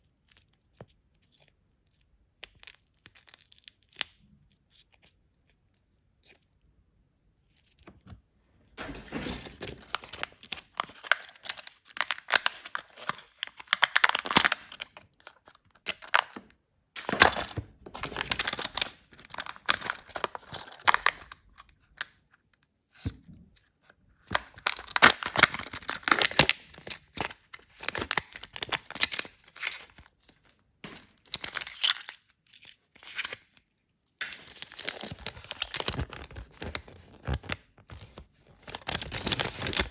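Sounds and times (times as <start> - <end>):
wrappers crinkling and tearing: 8.8 - 16.4, 17.0 - 21.6, 24.3 - 33.6, 34.2 - 39.9.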